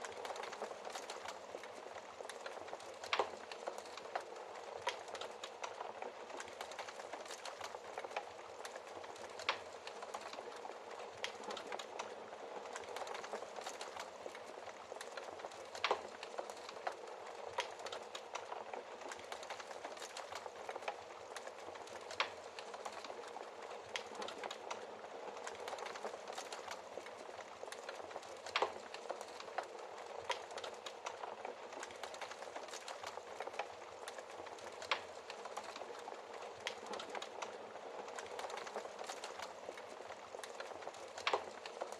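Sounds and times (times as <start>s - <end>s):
wood fire crackling and hissing: 0.0s - 41.9s.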